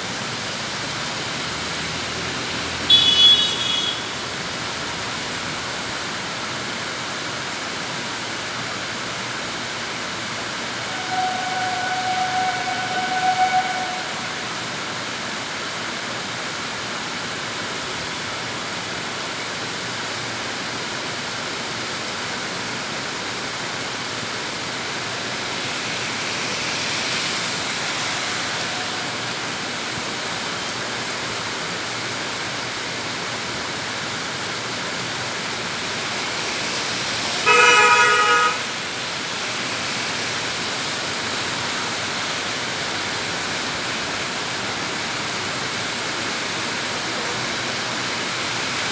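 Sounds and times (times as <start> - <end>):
heavy rain on street: 0.0 - 48.9
traffic noise: 0.0 - 48.9
vehicle horn honking: 2.9 - 4.4, 10.7 - 15.2, 37.4 - 38.8.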